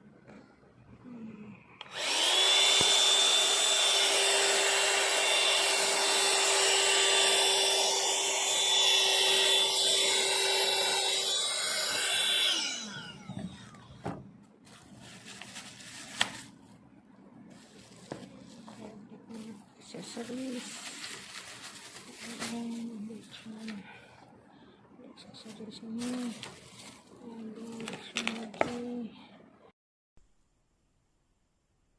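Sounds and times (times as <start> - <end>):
handheld vacuum cleaner running: 1.8 - 14.2, 17.5 - 22.9.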